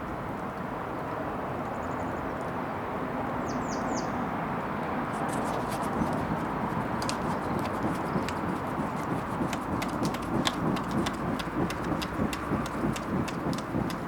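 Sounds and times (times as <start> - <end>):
bonfire rushing: 5.2 - 14.0
fire crackling and popping: 5.2 - 14.0.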